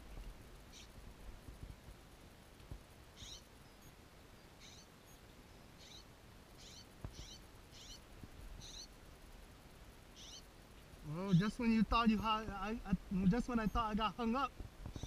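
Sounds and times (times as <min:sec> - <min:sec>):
small bird chirping: 0:00.6 - 0:01.0, 0:03.1 - 0:09.0, 0:10.1 - 0:10.6.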